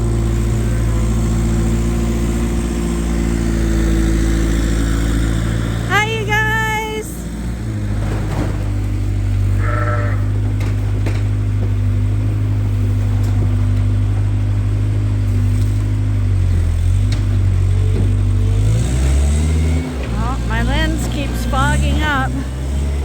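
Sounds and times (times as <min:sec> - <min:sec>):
skid steer engine droning: 0:00.0 - 0:23.0
sheep bleating: 0:09.5 - 0:10.6.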